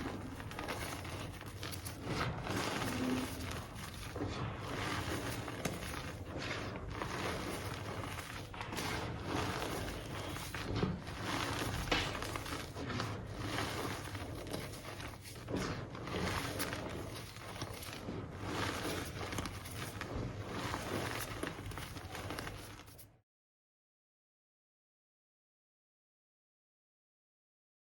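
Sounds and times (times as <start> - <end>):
hands crunching chalky powder: 0.0 - 23.1.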